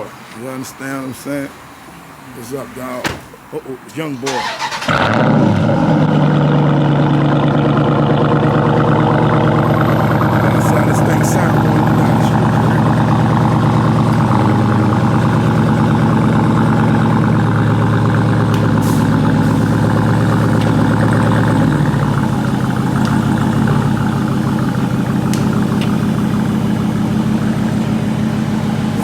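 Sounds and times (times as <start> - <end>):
car engine and exhaust running: 4.4 - 29.0.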